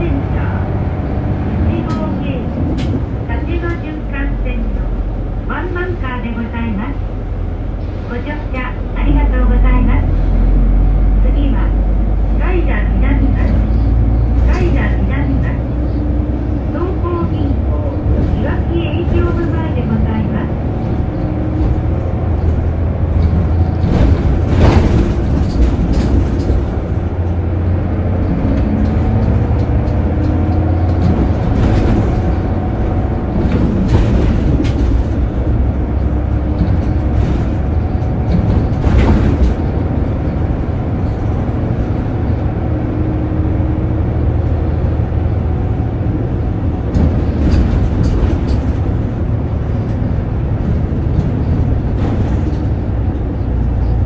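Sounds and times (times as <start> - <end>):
bus engine and road rumble: 0.0 - 54.0
sharp knocks and rattles: 20.8 - 42.4, 46.7 - 54.0.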